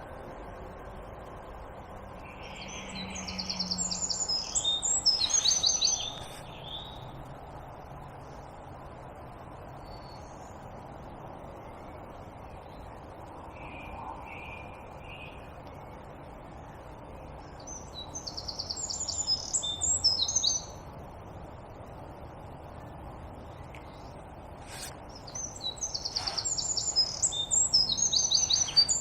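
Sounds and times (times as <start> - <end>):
low background hiss: 0.0 - 29.0
wild birds singing: 2.2 - 7.3, 13.5 - 20.8, 23.4 - 29.0.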